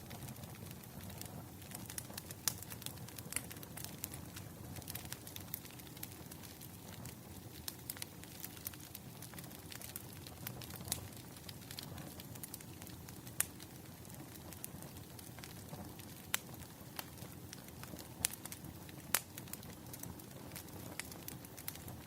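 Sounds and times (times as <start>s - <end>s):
firewood crackling: 0.0s - 22.0s.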